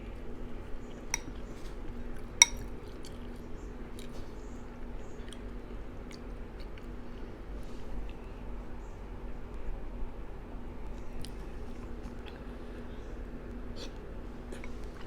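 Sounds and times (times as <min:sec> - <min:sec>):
soft eating sounds: 0:00.0 - 0:09.8, 0:10.8 - 0:15.0
spoon clinking against bowl: 0:01.1 - 0:01.3, 0:02.4 - 0:02.6.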